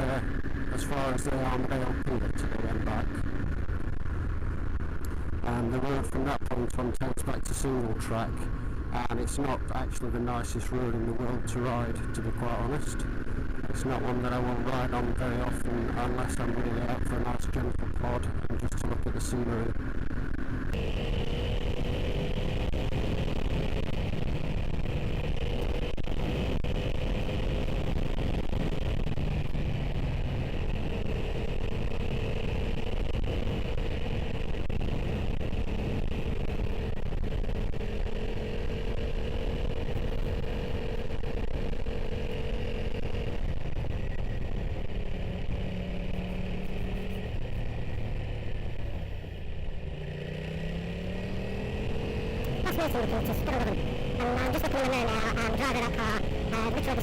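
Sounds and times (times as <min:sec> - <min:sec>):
motorcycle engine running: 0:00.0 - 0:57.0
road noise: 0:00.0 - 0:57.0.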